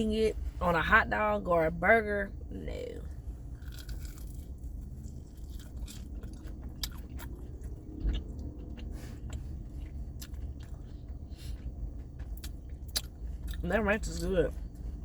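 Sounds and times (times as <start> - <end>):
steady low hum: 0.0 - 15.0
crunchy food chewing: 3.5 - 13.6.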